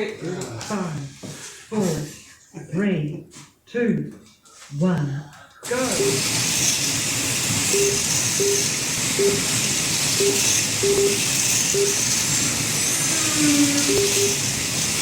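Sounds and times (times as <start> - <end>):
slot cars motors whirring: 5.6 - 15.0
short electronic beeps: 5.8 - 6.5, 7.6 - 12.4, 13.6 - 14.6.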